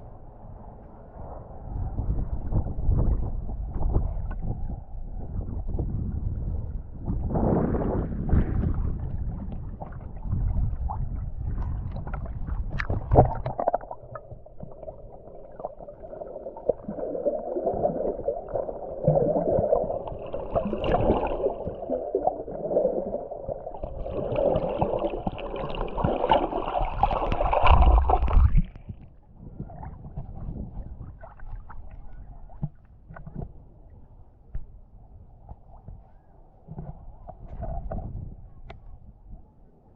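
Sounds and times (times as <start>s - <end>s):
water gurgling and sloshing: 6.6s - 34.6s.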